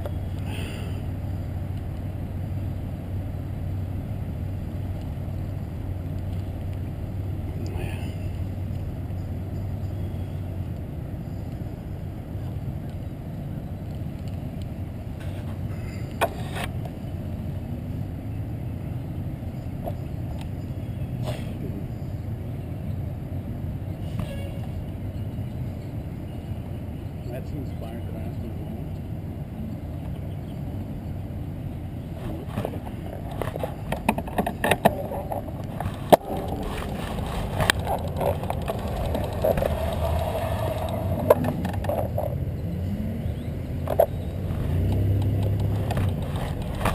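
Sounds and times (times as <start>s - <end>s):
wind and road rumble: 0.0s - 46.9s
bicycle frame rattling: 33.2s - 42.4s, 45.4s - 46.9s.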